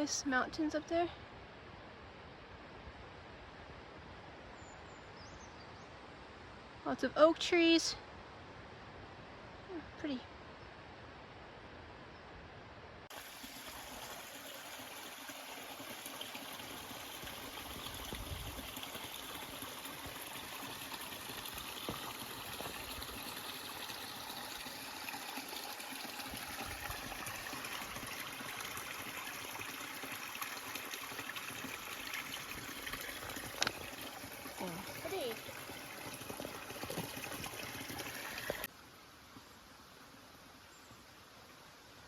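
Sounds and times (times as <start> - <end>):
stream water rushing: 13.1 - 40.6.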